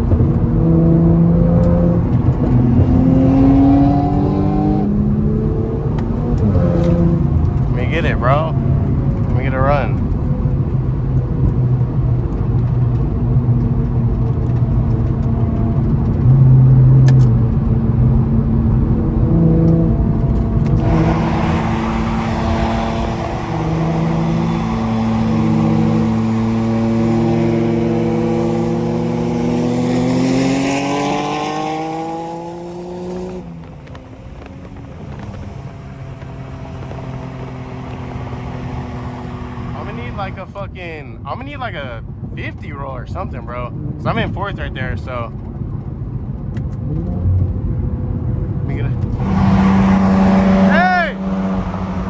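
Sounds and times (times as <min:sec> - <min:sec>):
engine accelerating: 0:00.0 - 0:40.6, 0:46.7 - 0:52.0
car engines at speed: 0:00.0 - 0:52.0
rushing noise: 0:20.4 - 0:40.5.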